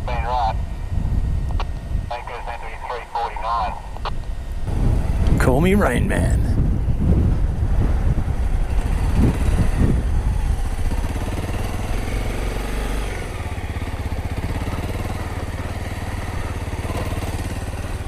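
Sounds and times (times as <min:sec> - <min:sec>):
dirt bike engine at low revs: 0:04.1 - 0:18.0.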